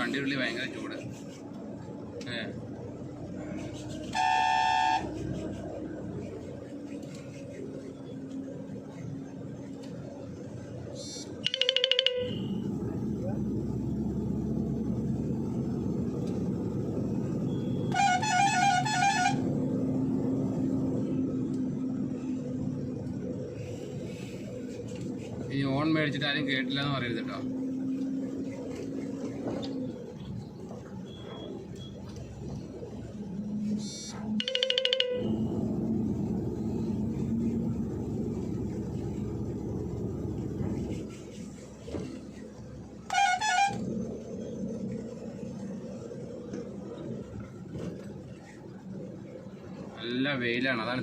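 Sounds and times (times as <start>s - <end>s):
truck engine droning: 0.0s - 51.0s
musical truck horn tune: 4.0s - 5.3s, 17.8s - 19.8s, 43.0s - 44.2s.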